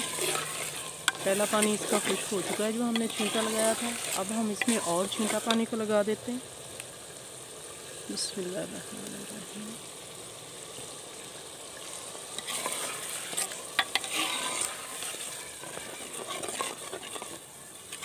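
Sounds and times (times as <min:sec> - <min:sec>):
ladle scraping clay pot: 0:00.0 - 0:05.7, 0:12.4 - 0:18.0
lentils sizzling in ghee: 0:00.0 - 0:18.0.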